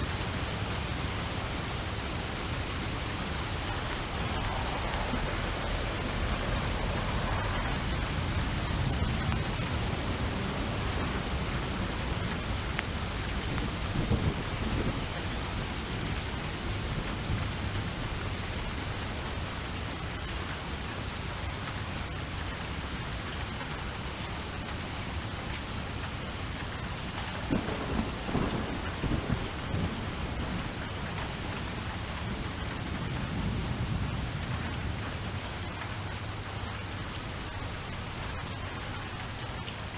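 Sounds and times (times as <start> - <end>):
thunder rumbling: 0.0 - 18.8, 27.1 - 35.8
heavy rain: 0.0 - 39.9.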